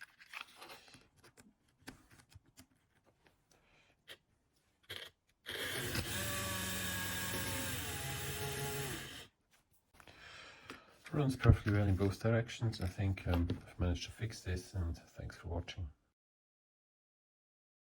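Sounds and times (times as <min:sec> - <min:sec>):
small electric motor whining: 0:05.5 - 0:09.3.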